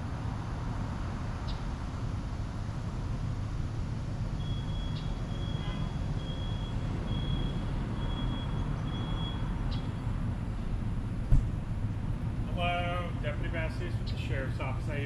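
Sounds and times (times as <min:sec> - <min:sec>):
low vehicle and road rumble: 0:00.0 - 0:15.0
high electronic beep: 0:04.4 - 0:09.4.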